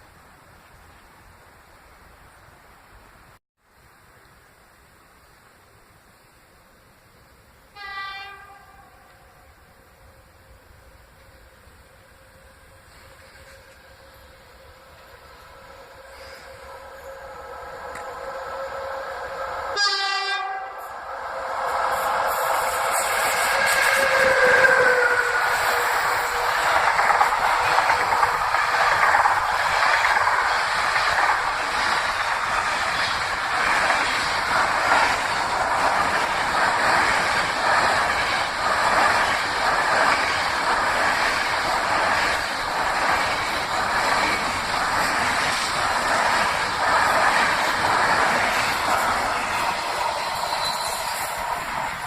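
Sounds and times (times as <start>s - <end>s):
train horn: 7.7s - 26.5s
train wheels clattering on rails: 21.9s - 52.0s.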